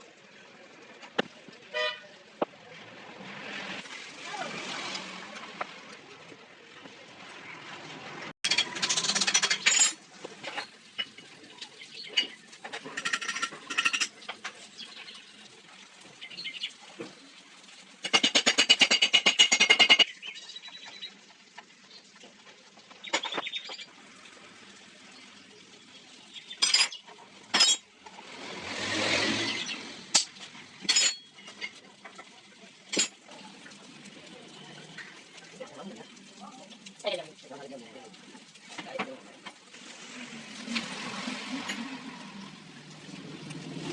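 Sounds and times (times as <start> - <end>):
metal tools clinking: 8.5 - 11.1, 30.2 - 31.8.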